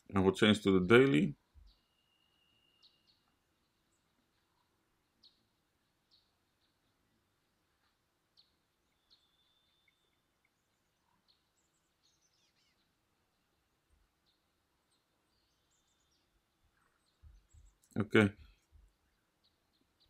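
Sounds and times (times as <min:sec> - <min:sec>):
faint bird chirps: 0:00.4 - 0:20.0.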